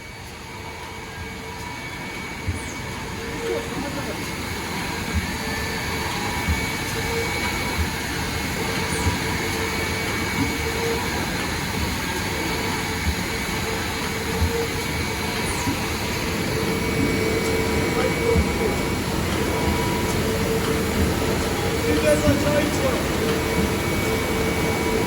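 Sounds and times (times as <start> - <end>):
machine whirring hum: 0.0 - 25.0.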